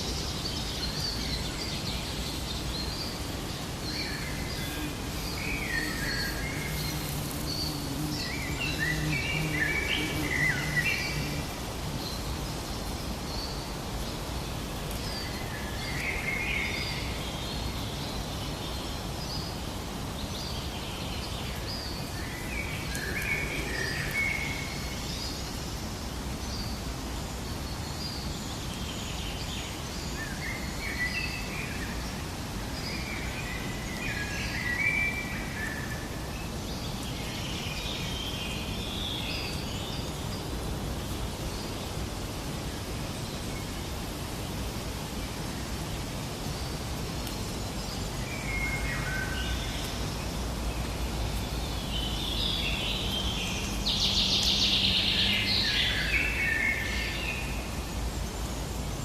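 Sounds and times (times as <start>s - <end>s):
birds chirping: 0.0s - 13.6s, 21.2s - 25.6s
rushing ambient hiss: 0.0s - 59.0s.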